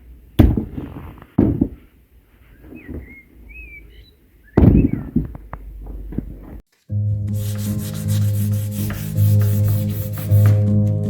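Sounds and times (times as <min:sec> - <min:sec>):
sharp knocks and thuds: 0:00.4 - 0:01.9, 0:04.6 - 0:06.6
small bird chirping: 0:02.5 - 0:05.2.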